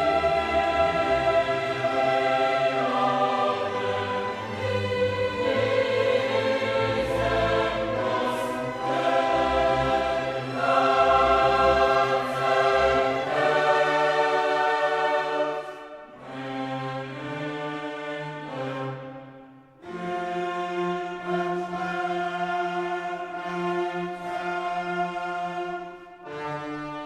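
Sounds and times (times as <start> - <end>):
choir singing held chords: 0.0 - 20.0
orchestral accompaniment: 0.0 - 27.0.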